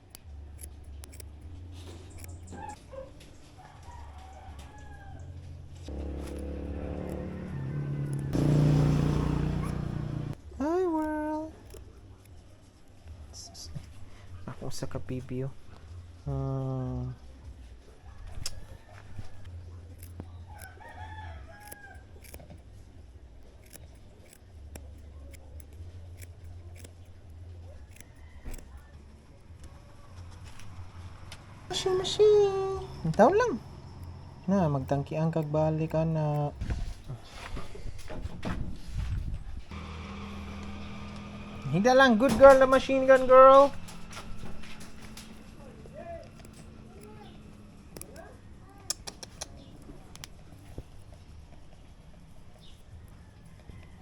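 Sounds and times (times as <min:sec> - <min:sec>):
rooster crowing: 0:03.5 - 0:10.4, 0:18.1 - 0:22.4, 0:27.8 - 0:29.1, 0:52.9 - 0:54.0
electric hair clippers buzzing: 0:05.9 - 0:07.5, 0:08.1 - 0:10.4, 0:39.7 - 0:43.9
sharp clicks: 0:23.4 - 0:28.9, 0:40.6 - 0:51.8.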